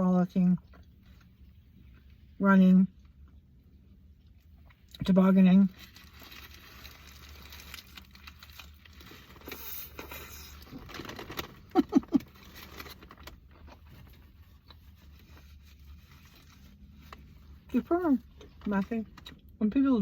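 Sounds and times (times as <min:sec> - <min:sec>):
wrapper rustling and crinkling: 0:05.6 - 0:19.1.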